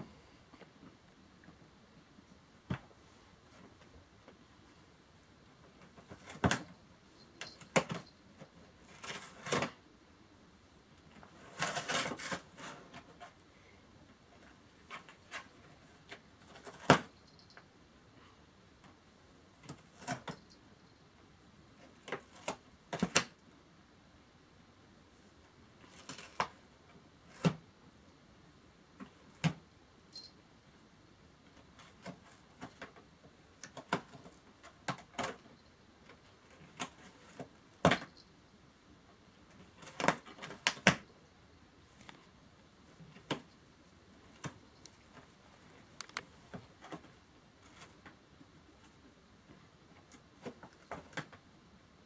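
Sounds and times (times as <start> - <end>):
cat scratching cardboard box: 11.2 - 13.4.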